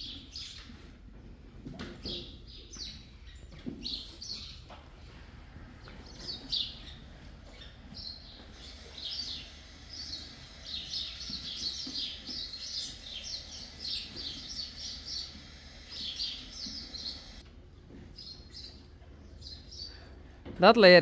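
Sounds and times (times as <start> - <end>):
small birds chirping: 2.0 - 4.8, 5.8 - 17.4, 18.1 - 20.2.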